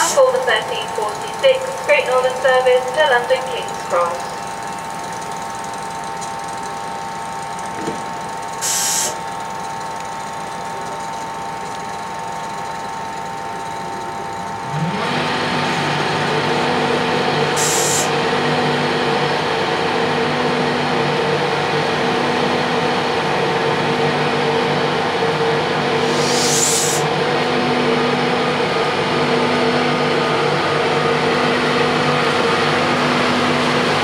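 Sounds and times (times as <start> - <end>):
train powering up drone: 0.0 - 9.2, 11.9 - 34.0
train engine whine: 0.0 - 34.0
brief air hisses: 8.6 - 9.2, 17.6 - 18.1, 26.0 - 27.0.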